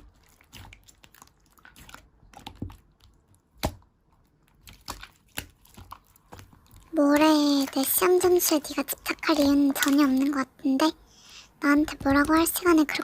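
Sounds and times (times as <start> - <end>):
slime squeezed with wet pops: 0.0 - 10.3.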